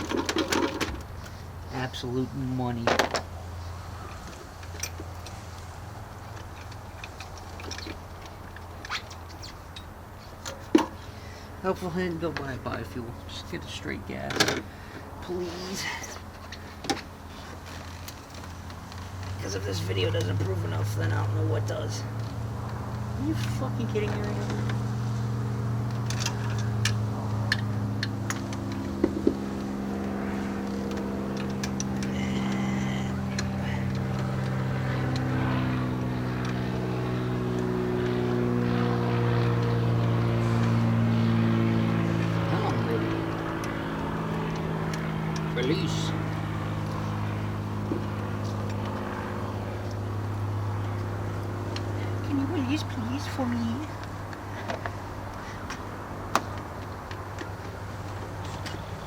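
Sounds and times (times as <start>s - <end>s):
steady low hum: 0.0s - 59.0s
motor humming: 25.8s - 52.3s.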